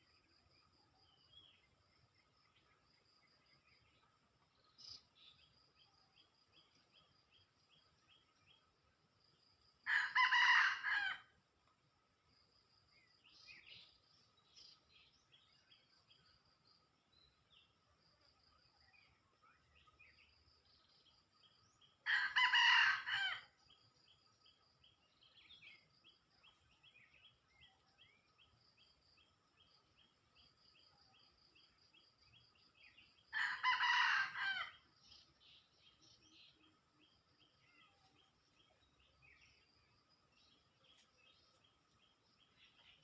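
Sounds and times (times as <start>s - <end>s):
faint bird and insect calls: 0.0s - 43.0s
cockerel crowing: 9.9s - 11.3s, 22.1s - 23.5s, 33.4s - 34.8s.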